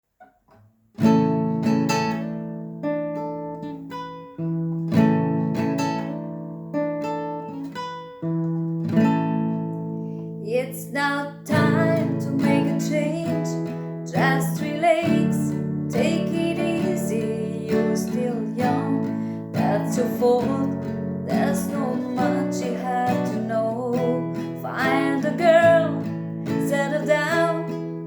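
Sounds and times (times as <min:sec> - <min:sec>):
acoustic guitar strumming: 0:00.5 - 0:28.0
person singing: 0:10.5 - 0:27.8.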